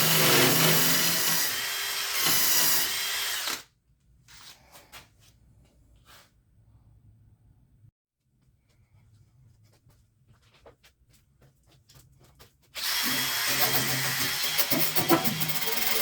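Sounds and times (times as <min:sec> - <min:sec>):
electric power tool on metal: 0:00.0 - 0:03.6, 0:12.8 - 0:16.0.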